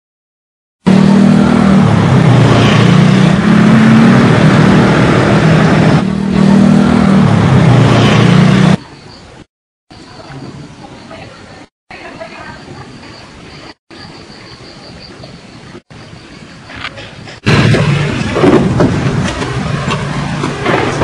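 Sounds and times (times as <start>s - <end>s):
motor scooter engine revving: 0.9s - 8.8s.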